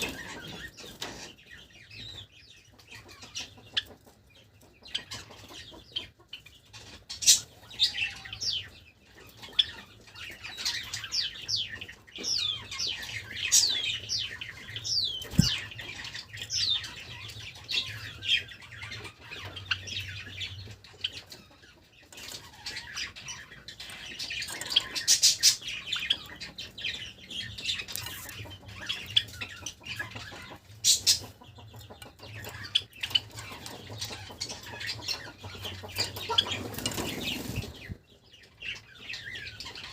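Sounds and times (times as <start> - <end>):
sparrows chirping: 0.0 - 39.9
wing flutters and knocks: 15.3 - 15.7.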